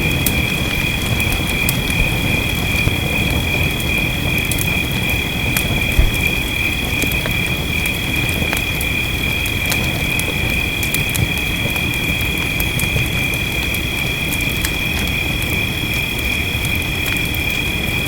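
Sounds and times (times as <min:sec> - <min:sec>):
fireplace crackling and popping: 0:00.0 - 0:17.7
rain rushing: 0:00.0 - 0:18.0
heavy thump: 0:05.9 - 0:06.6.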